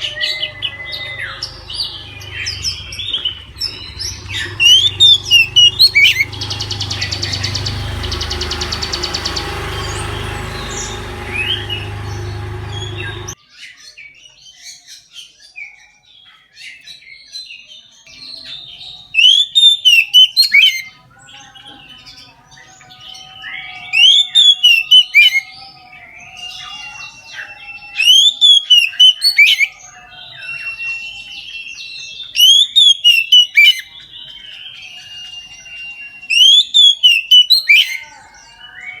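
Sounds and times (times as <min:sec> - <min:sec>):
bird whistling song: 0:00.0 - 0:13.4, 0:18.1 - 0:21.0, 0:22.7 - 0:39.0
fast bird trill: 0:00.0 - 0:13.4.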